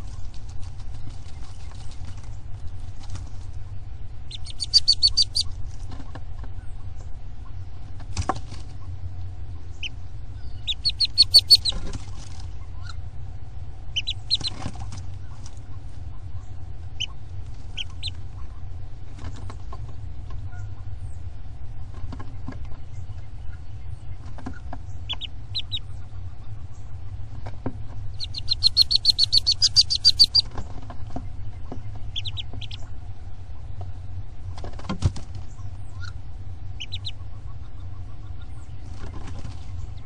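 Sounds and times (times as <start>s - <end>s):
steady low hum: 0.0s - 40.0s
bird chirps: 4.3s - 5.6s, 9.7s - 12.9s, 13.9s - 14.6s, 24.8s - 27.0s, 28.0s - 30.6s, 31.2s - 32.9s, 36.8s - 40.0s.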